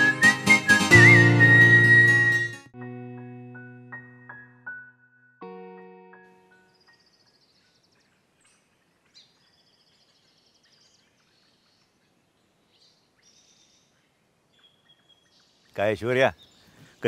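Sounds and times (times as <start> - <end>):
small birds chirping: 6.5 - 17.0.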